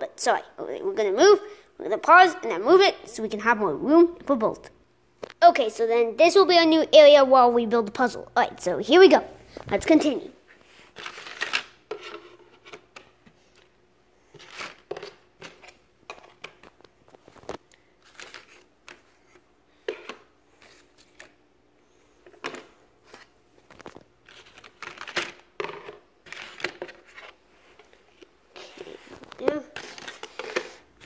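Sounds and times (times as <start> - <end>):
puzzle pieces rustling: 10.9 - 12.1, 17.3 - 19.2, 23.1 - 27.9, 28.6 - 30.8.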